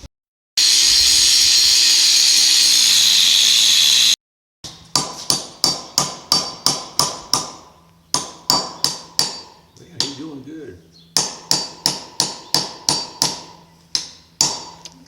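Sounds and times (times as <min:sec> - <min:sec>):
loud steady hiss: 0:00.6 - 0:04.2.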